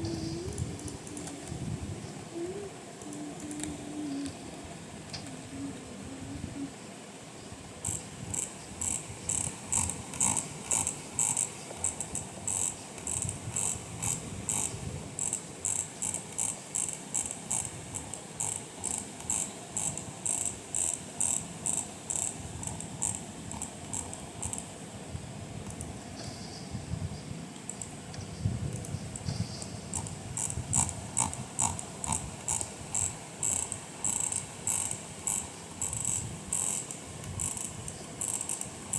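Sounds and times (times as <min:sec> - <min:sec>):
sharp clicks: 0:28.8 - 0:38.9.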